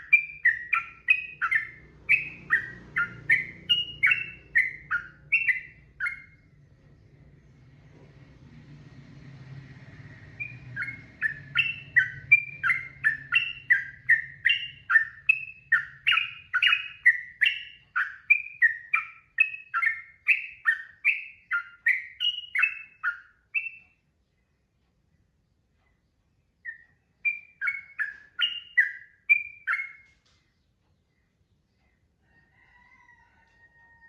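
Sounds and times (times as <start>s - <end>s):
bird singing whistled notes: 0.0s - 6.6s, 10.2s - 24.0s, 26.6s - 30.2s
faint low hum: 0.0s - 34.0s.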